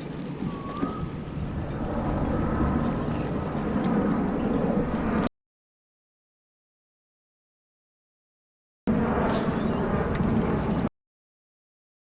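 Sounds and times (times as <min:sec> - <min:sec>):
boat motor rumble: 0:00.0 - 0:05.3
wind and water noise: 0:00.0 - 0:05.3, 0:08.9 - 0:10.9.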